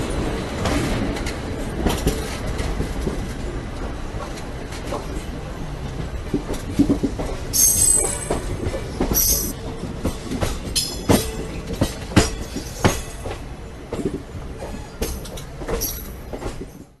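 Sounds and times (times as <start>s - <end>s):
train rumble: 0.0s - 17.0s
train wheels knocking on rail joints: 0.1s - 5.2s, 5.8s - 17.0s
high wheel squeals: 7.6s - 8.5s.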